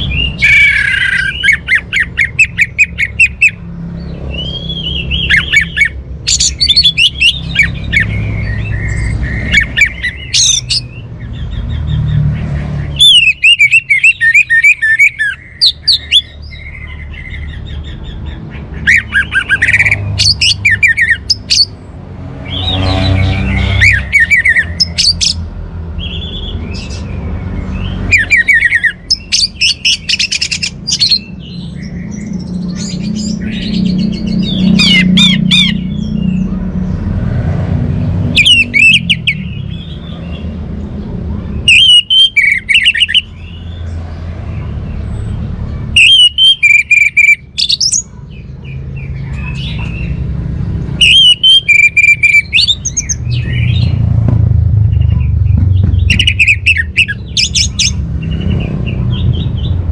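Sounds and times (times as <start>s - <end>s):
thrush singing whistled phrases: 13.0s - 16.5s, 41.6s - 43.4s, 46.0s - 47.9s, 51.0s - 53.9s.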